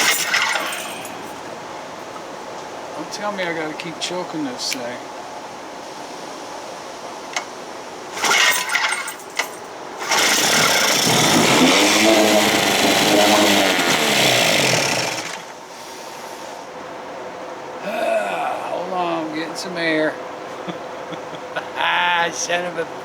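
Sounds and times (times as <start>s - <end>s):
outboard motor pull-starting: 0.0s - 1.5s, 8.1s - 15.6s
outboard motor running: 0.0s - 1.7s, 8.1s - 15.7s.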